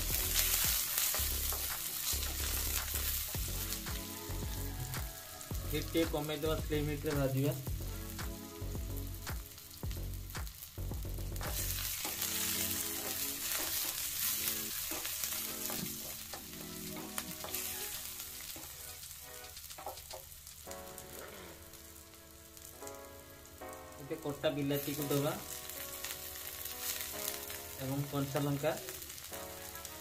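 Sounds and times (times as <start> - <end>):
onions sizzling in hot oil: 0.0 - 30.0.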